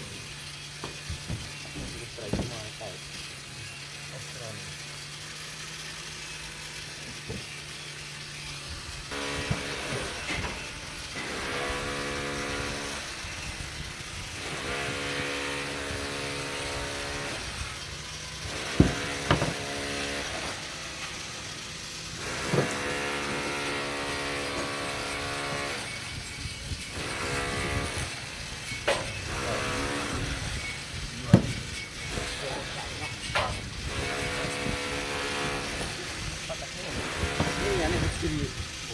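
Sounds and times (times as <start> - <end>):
motor-driven machine running: 0.0 - 38.9
sharp knocks: 18.6 - 19.7, 31.3 - 31.7.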